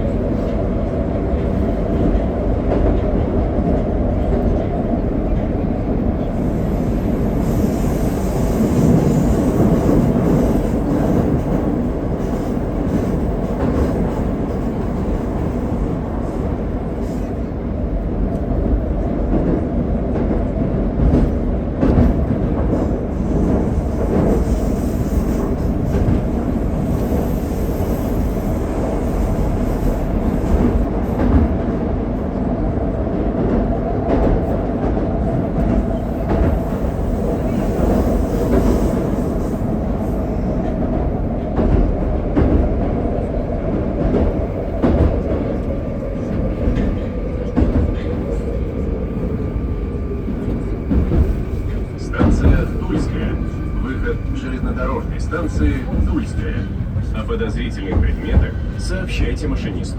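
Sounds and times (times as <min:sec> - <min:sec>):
metro train rumbling in tunnel: 0:00.0 - 0:59.9.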